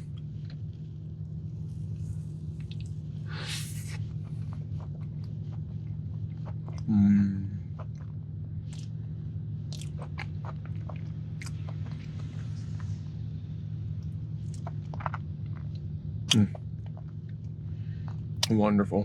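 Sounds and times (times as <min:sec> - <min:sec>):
steady low hum: 0:00.0 - 0:19.0
close chewing: 0:04.0 - 0:09.0, 0:09.6 - 0:13.2, 0:14.0 - 0:18.6
wet mouth clicks and smacks: 0:14.5 - 0:17.2.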